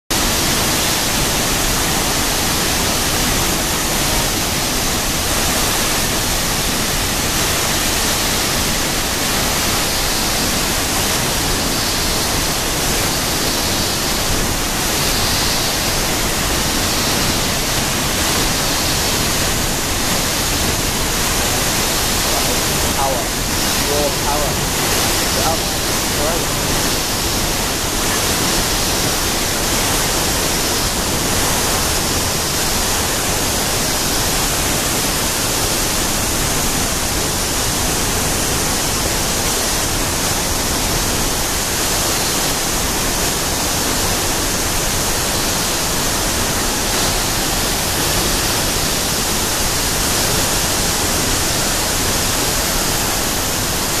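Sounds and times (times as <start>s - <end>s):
waterfall pounding: 0.1s - 54.0s
cicadas buzzing: 18.4s - 27.8s.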